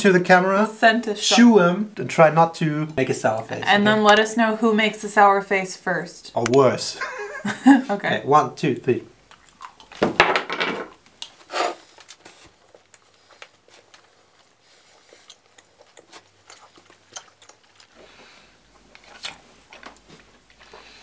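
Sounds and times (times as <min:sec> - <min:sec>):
people chewing gum: 0:09.2 - 0:10.0, 0:11.1 - 0:21.0
small crunches: 0:15.1 - 0:21.0.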